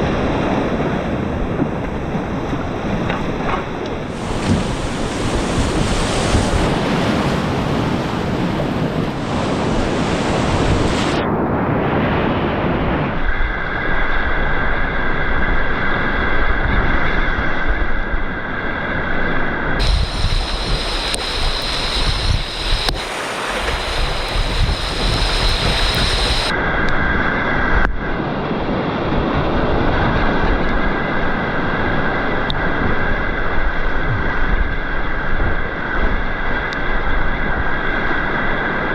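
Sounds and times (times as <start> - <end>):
wind buffeting microphone: 0.0 - 18.4, 19.8 - 38.9
rushing whitewater: 4.2 - 8.4, 19.8 - 26.5.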